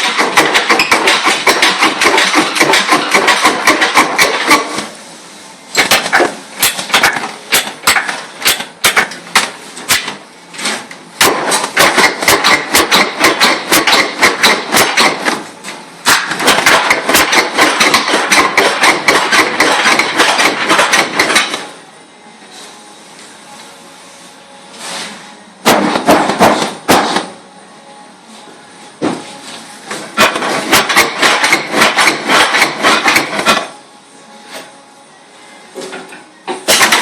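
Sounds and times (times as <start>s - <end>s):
rapid sharp knocks: 16.2s - 21.6s.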